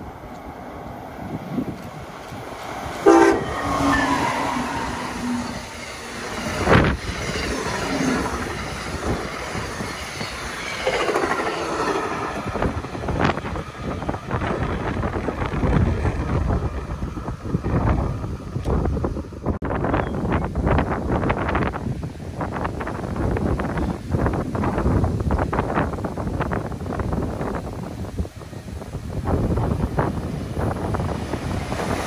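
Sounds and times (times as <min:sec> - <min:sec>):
train cars rushing by: 0:00.0 - 0:19.6, 0:20.6 - 0:32.0
steady train rumble: 0:00.0 - 0:32.0
train horn blast: 0:03.0 - 0:05.6.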